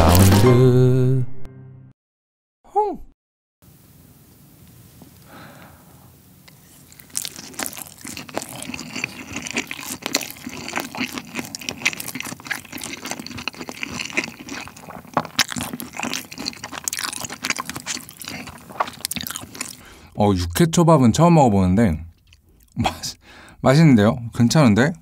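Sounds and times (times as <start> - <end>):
close chewing with mouth clicks: 6.5 - 20.1, 22.2 - 22.8.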